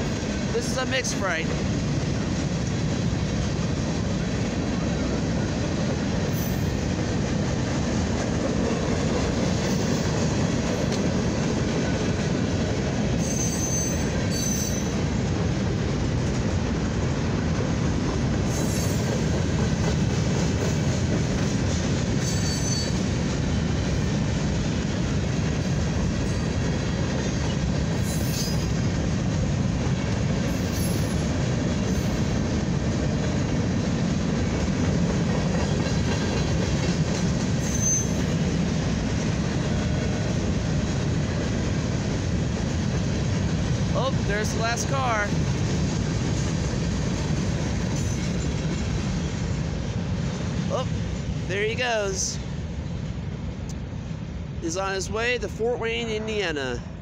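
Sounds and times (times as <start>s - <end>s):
freight train rolling past: 0.0s - 57.0s
high-pitched wheel squeals: 13.2s - 15.0s, 22.2s - 23.0s, 28.0s - 28.7s, 37.6s - 38.3s.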